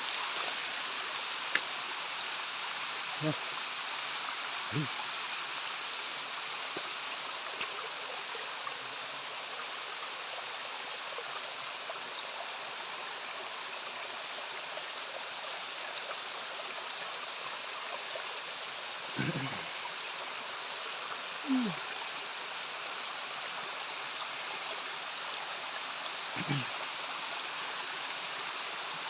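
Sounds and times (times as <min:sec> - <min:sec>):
faint ticks: 0:01.5 - 0:01.8
waterfall rushing: 0:19.1 - 0:19.9.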